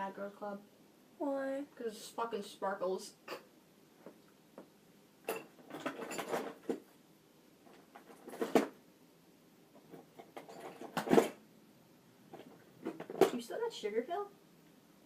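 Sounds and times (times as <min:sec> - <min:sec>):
handling knocks and rustles: 0:04.0 - 0:07.0, 0:07.6 - 0:08.8, 0:09.8 - 0:11.4, 0:12.3 - 0:13.5.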